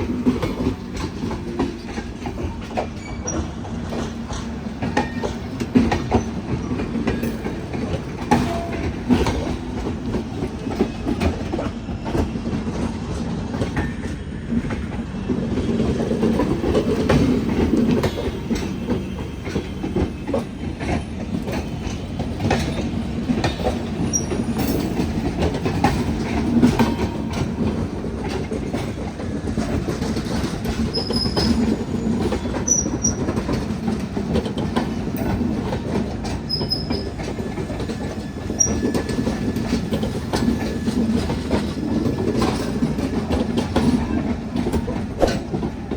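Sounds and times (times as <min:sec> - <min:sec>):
train rumbling over crossing: 0:00.0 - 0:45.9
wheels clacking over rail gaps: 0:00.0 - 0:45.9
high wheel squeals: 0:23.9 - 0:25.1, 0:30.7 - 0:33.4, 0:36.4 - 0:41.5.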